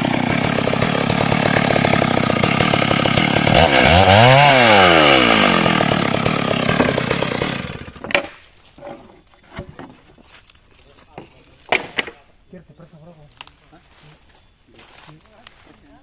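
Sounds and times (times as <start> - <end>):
chainsaw cutting wood: 0.0 - 8.4.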